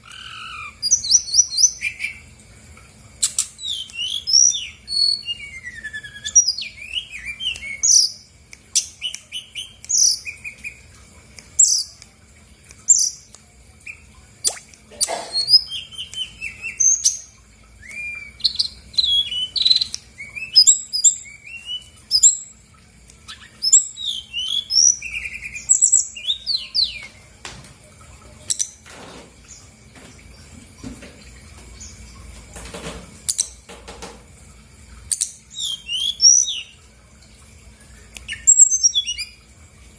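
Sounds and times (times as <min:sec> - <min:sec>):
bird singing chirps and trills: 0:00.0 - 0:02.3, 0:03.2 - 0:11.0, 0:12.9 - 0:22.6, 0:23.2 - 0:27.2, 0:35.1 - 0:36.8, 0:38.2 - 0:39.4.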